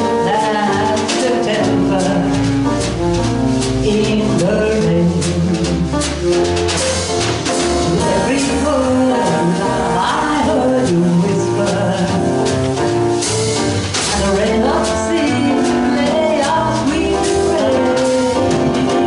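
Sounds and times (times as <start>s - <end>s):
double bass: 0.0s - 19.0s
drums: 0.0s - 19.0s
piano: 0.0s - 19.0s
baritone saxophone: 0.9s - 6.8s, 7.8s - 19.0s
person singing: 7.8s - 12.4s, 14.1s - 19.0s.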